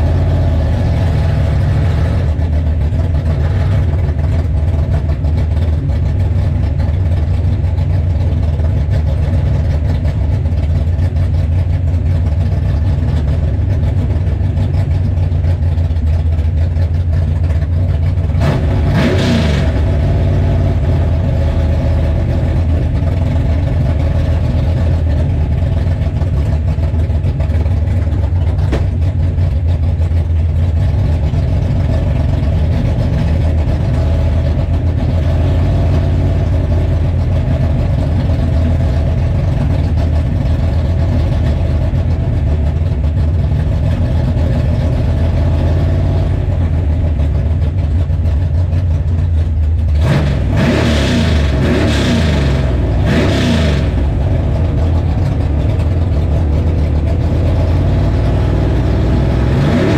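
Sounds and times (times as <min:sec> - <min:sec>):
engine revving: 0:00.0 - 0:02.6, 0:18.3 - 0:23.0, 0:49.9 - 0:59.9
car engine idling loudly: 0:00.0 - 0:59.9.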